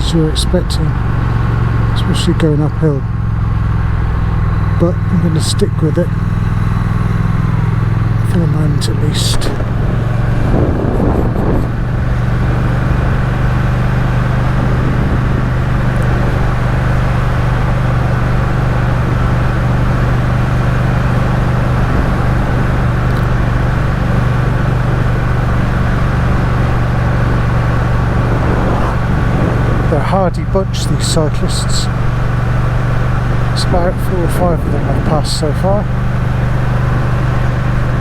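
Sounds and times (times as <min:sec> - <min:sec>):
motorcycle engine running: 0:00.0 - 0:38.0
wind noise on microphone: 0:00.0 - 0:38.0.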